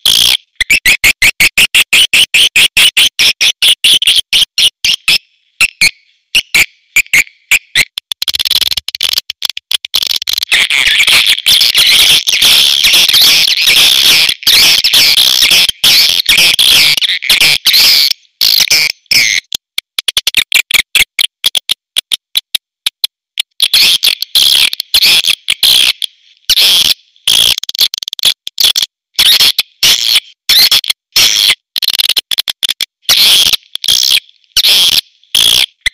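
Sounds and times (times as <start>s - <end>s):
rapid clicks: 19.6s - 23.6s.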